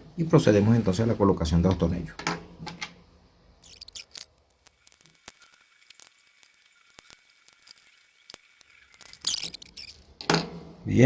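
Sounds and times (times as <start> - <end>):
small screws clicking and tapping: 3.6 - 10.2.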